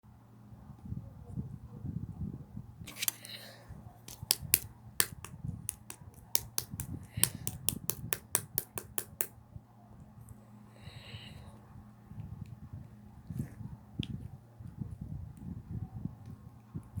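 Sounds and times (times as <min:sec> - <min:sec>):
slime popping clicks: 0:04.1 - 0:09.3.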